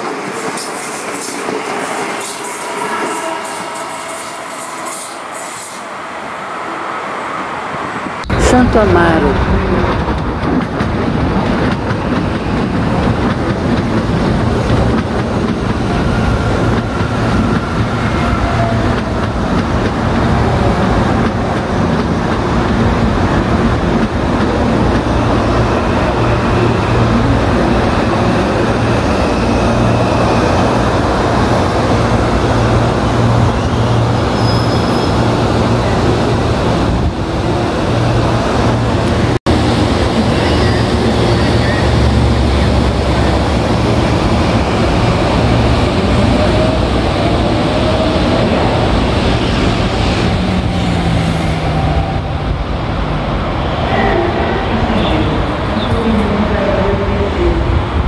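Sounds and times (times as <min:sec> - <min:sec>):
train wheels rumbling: 0:00.0 - 0:58.0
faint brake squeals: 0:33.6 - 0:35.1.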